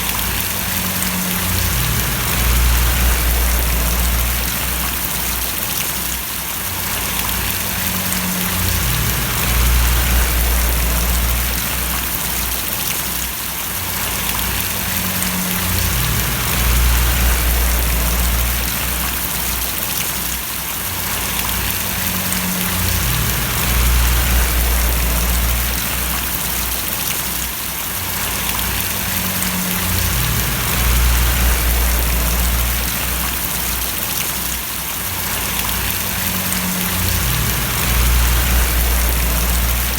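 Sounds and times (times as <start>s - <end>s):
deep low rumble: 0.0s - 5.4s, 7.6s - 12.8s, 14.3s - 19.5s, 21.7s - 27.0s, 28.4s - 33.8s, 35.8s - 39.9s
steady rain falling: 0.0s - 39.9s.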